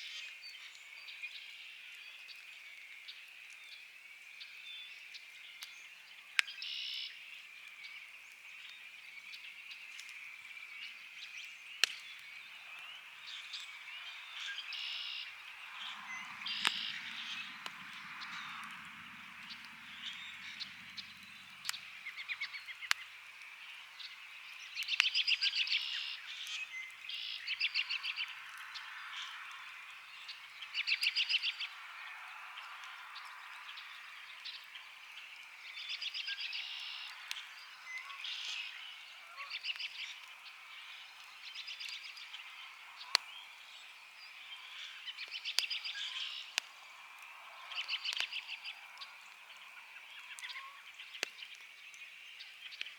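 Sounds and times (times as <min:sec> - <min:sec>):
campfire crackling and popping: 0:02.3 - 0:52.9.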